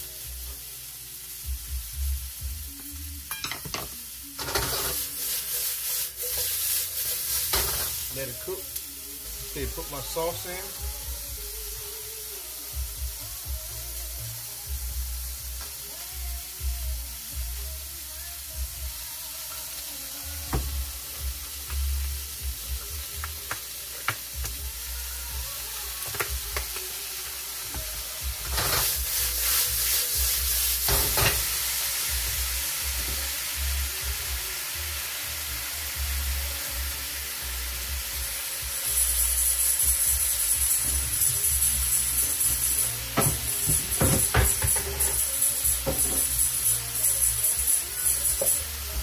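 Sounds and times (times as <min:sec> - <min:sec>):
food sizzling in a wok: 0:00.0 - 0:49.0.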